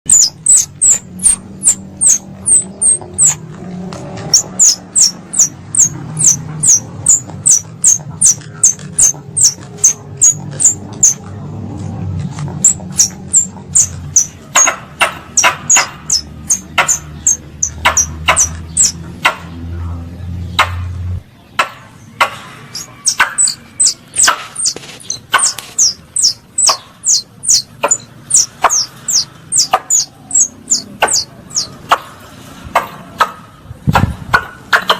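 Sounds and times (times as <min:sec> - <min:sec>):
sharp high chirps: 0:00.1 - 0:03.4, 0:04.3 - 0:11.2, 0:12.6 - 0:14.7, 0:15.4 - 0:19.0, 0:22.7 - 0:31.8
low hum: 0:00.1 - 0:14.5.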